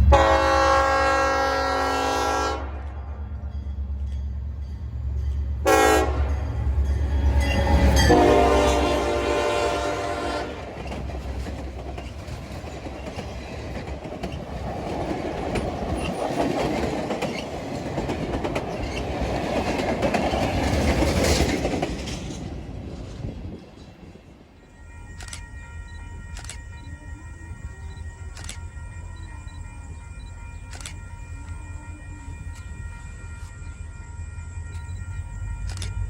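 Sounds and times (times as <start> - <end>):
locomotive air horn: 0.0 - 3.0, 5.6 - 6.6, 7.2 - 10.8
train wheels clickety-clack: 3.6 - 33.9.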